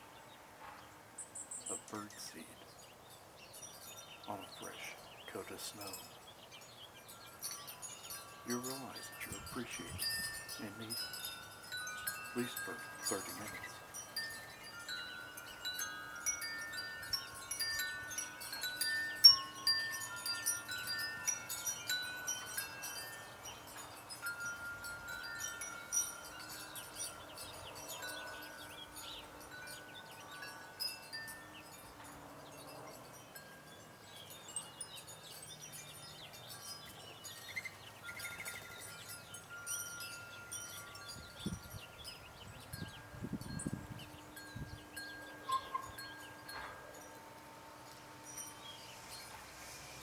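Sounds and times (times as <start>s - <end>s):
wind chimes ringing: 1.7s - 50.0s.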